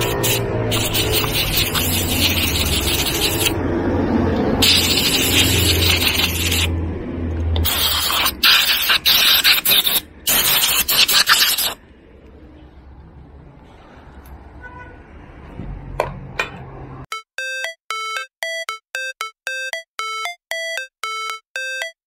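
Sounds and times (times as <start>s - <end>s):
rough rubbing strokes: 0.0s - 3.6s.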